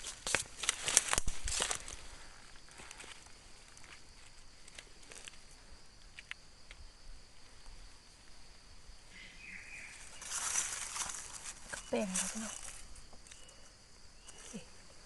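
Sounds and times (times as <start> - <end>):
footsteps crackling on leaf litter: 0.0 - 2.0, 10.0 - 12.8
high insect drone: 0.0 - 15.0.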